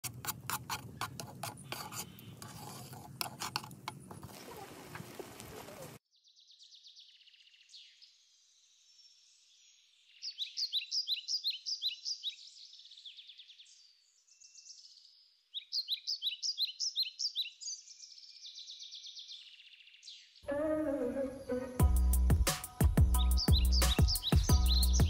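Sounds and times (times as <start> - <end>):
quick repeated bird chirps: 23.2 - 25.0.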